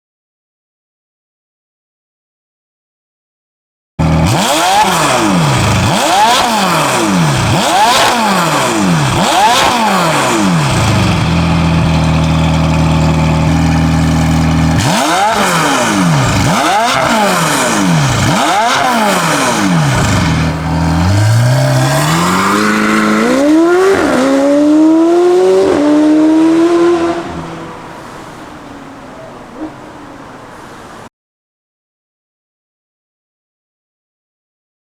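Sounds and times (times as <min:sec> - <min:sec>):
car engine revving: 0:04.0 - 0:31.1.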